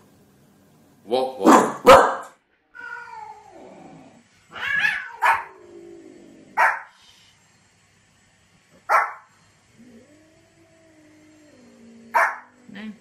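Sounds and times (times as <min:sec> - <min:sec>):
small dog barking: 0:01.4 - 0:02.3, 0:04.9 - 0:05.6, 0:06.6 - 0:06.9, 0:08.9 - 0:09.3, 0:12.1 - 0:12.5.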